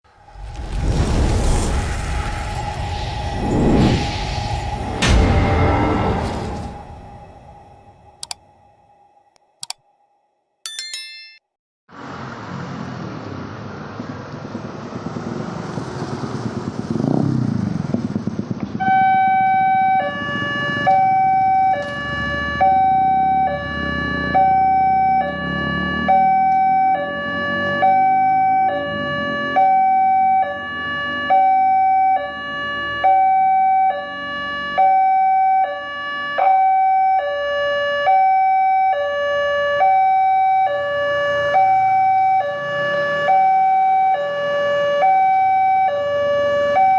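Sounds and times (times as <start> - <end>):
vehicle passing by: 11.9 - 19.0, 22.0 - 29.7
street traffic: 11.9 - 35.0, 37.2 - 46.9
two-tone crossing warning alarm: 18.8 - 46.9.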